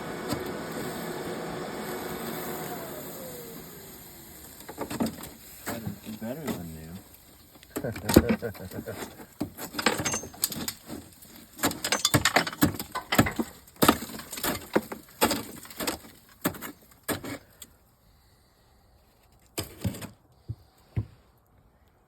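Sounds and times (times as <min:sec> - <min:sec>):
parts and tools clattering: 0:04.6 - 0:17.5.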